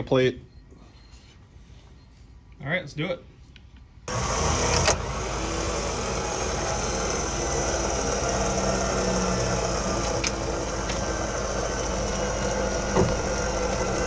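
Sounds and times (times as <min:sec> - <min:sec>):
powered hoist running: 0:04.1 - 0:14.0.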